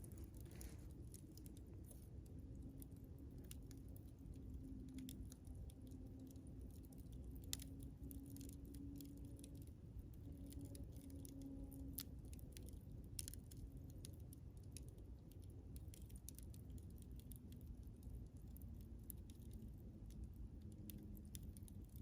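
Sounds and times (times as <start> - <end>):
campfire crackling and popping: 0.0 - 22.0
faint low hum: 0.0 - 22.0
low rumble of burning fire: 0.0 - 22.0.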